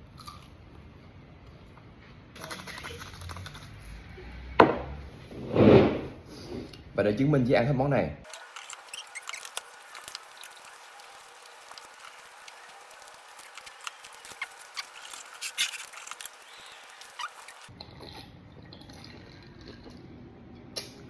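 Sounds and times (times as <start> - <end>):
chewing: 11.6 - 20.0.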